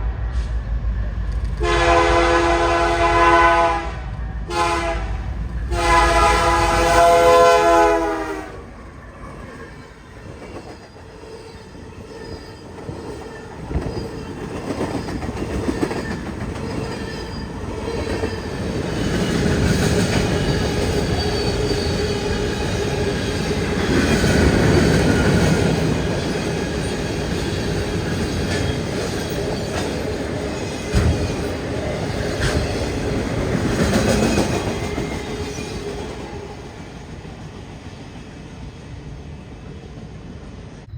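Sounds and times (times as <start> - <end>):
train passing close by: 0.0 - 40.9
train horn: 1.6 - 8.8.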